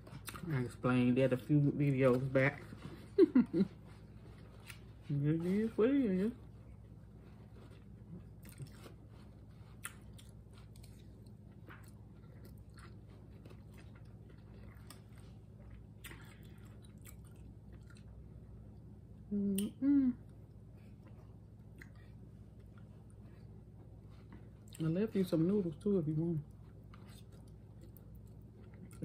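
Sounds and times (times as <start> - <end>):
chewing noodles: 6.8 - 18.4, 26.4 - 29.0
person humming mm-hm: 19.3 - 20.3.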